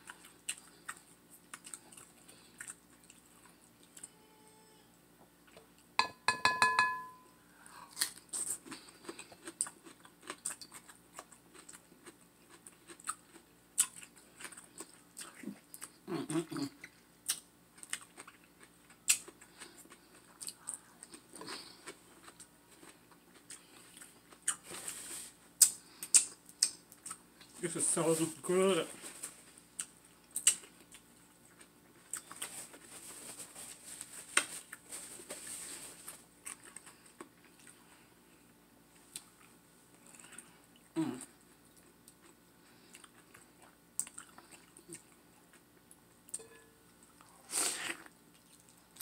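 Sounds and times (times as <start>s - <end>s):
crunchy chewing of cucumber: 0.0s - 4.0s, 7.9s - 27.2s, 35.5s - 38.1s
ringing note: 6.0s - 7.4s.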